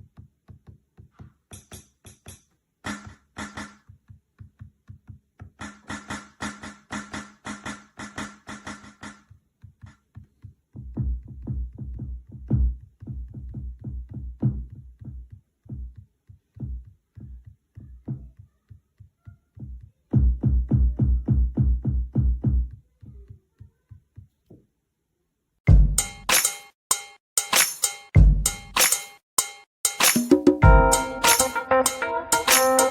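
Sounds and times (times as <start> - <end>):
electronic drum hits: 25.7 - 32.9.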